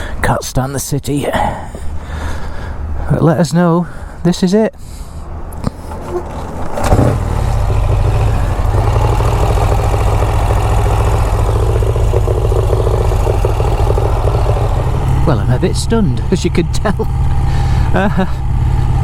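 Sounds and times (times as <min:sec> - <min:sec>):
motorcycle engine idling: 0:07.1 - 0:19.0.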